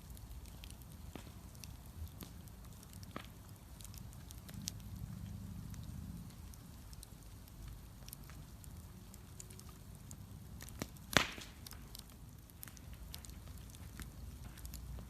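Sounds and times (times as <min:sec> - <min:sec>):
bonfire crackling: 0:00.0 - 0:15.0
loud pop: 0:11.1 - 0:11.6.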